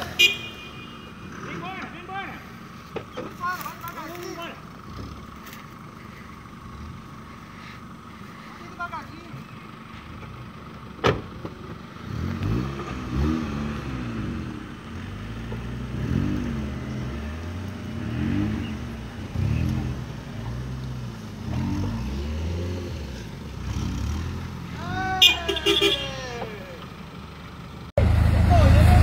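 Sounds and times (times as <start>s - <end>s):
engine revving under load: 11.0s - 26.8s, 27.9s - 29.0s.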